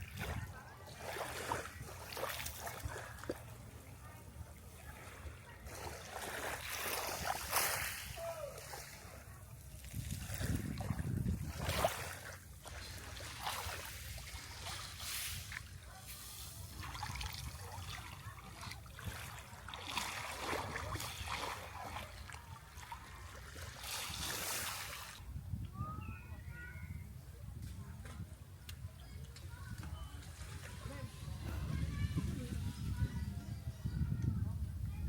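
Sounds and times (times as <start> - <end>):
water splashing and trickling: 0.0 - 25.2.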